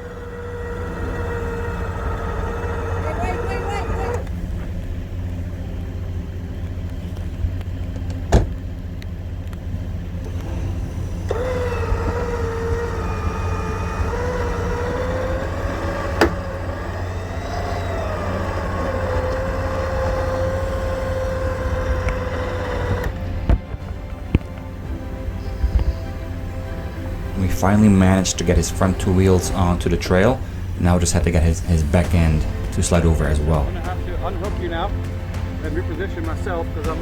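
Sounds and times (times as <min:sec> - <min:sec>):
mechanical whine: 0:00.0 - 0:37.0
vehicle engine running: 0:00.0 - 0:37.0
sharp clicks: 0:10.2 - 0:24.8.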